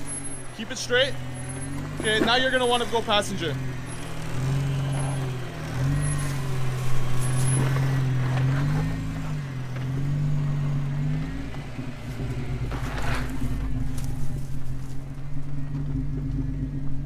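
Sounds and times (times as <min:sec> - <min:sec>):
engine running at low revs: 0:00.0 - 0:17.0.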